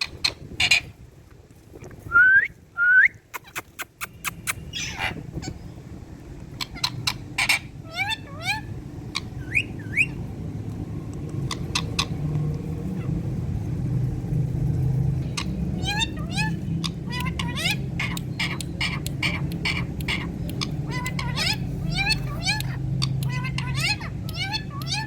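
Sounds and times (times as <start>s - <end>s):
parakeet whistling and calling: 4.3s - 5.6s, 6.6s - 10.3s, 11.4s - 12.2s, 15.2s - 25.0s.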